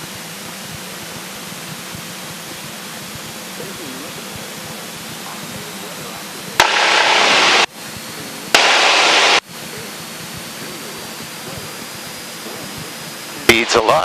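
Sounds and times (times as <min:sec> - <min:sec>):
muffled aircraft cabin noise: 0:00.0 - 0:14.0
radio static bursts: 0:00.0 - 0:14.0.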